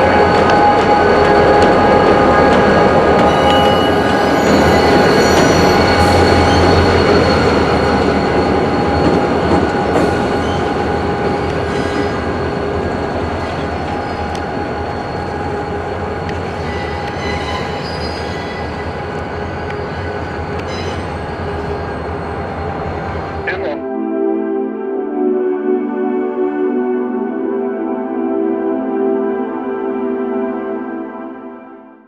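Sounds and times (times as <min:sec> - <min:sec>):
train wheels squealing on rails: 0:00.0 - 0:23.5.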